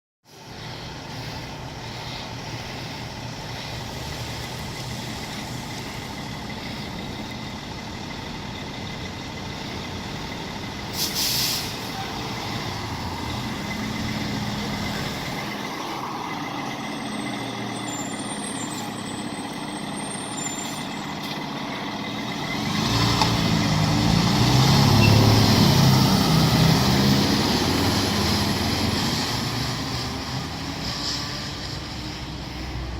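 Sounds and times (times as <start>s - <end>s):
diesel fire engine running: 0.3s - 32.9s
air brake release hiss: 10.9s - 12.0s.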